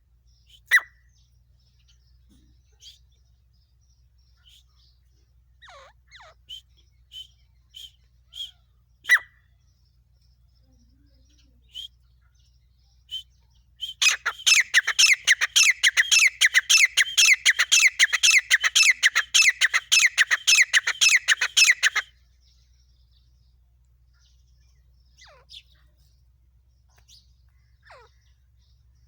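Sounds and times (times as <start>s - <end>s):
francolin calling: 5.6s - 9.4s, 13.1s - 22.1s.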